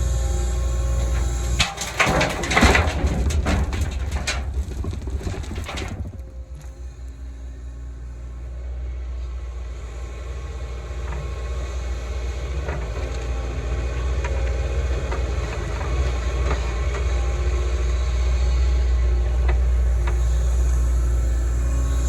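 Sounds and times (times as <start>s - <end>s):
diesel engine rumbling: 0.0s - 22.0s
metallic clanks and rattles: 0.7s - 6.8s.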